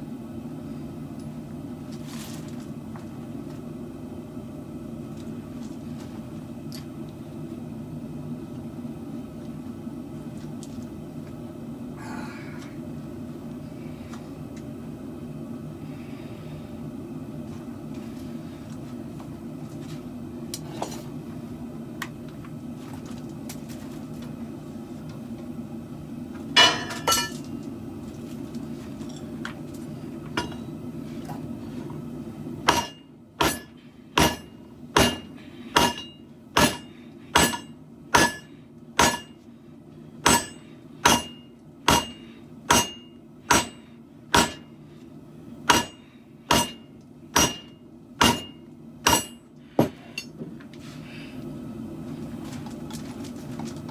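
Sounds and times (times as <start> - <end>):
hammer ringing on anvil: 26.6 - 27.4, 32.7 - 39.4, 40.2 - 43.8, 44.4 - 44.7, 45.7 - 49.5
metallic clank: 26.6 - 27.4.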